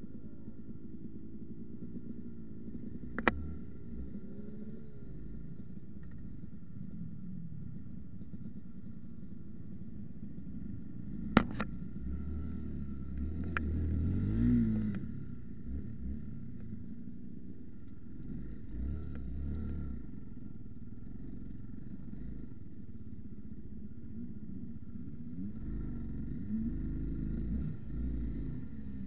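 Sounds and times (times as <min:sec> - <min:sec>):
vehicle engine revving while driving: 0:11.1 - 0:16.7, 0:18.1 - 0:20.2, 0:25.2 - 0:29.0.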